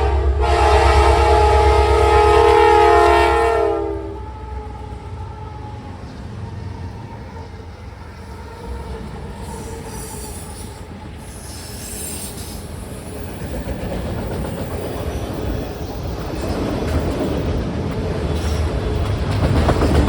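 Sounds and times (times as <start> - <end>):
train wheels rumbling on rail: 0.0 - 20.0
wheel squeal: 9.4 - 13.5.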